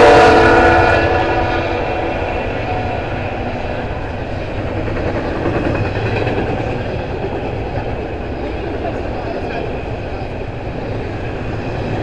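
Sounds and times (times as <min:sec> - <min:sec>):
locomotive horn: 0:00.0 - 0:03.2
train cars rumbling on rails: 0:00.0 - 0:12.0.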